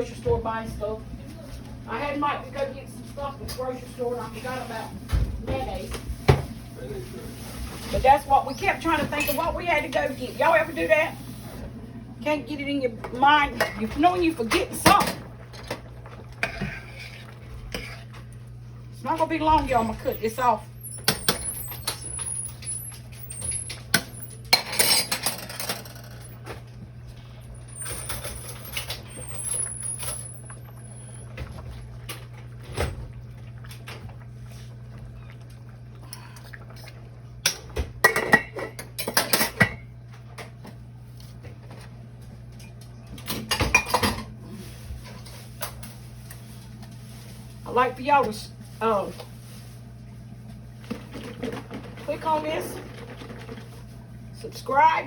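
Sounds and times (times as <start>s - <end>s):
metal pots and utensils clattering: 7.8s - 11.0s, 19.1s - 26.6s, 27.7s - 30.4s, 37.4s - 40.5s, 43.2s - 44.3s.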